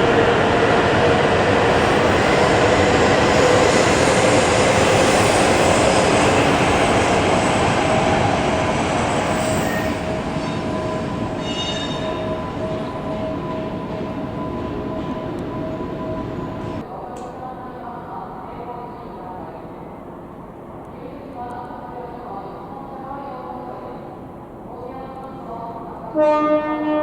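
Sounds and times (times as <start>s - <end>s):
bullet train rushing past: 0.0s - 16.9s
brief high-pitched squeal: 11.4s - 12.2s.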